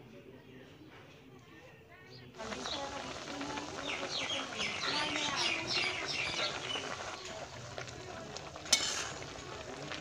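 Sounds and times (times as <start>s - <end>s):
water boiling: 2.4s - 10.0s
metal spatula knocking pan: 8.7s - 9.2s.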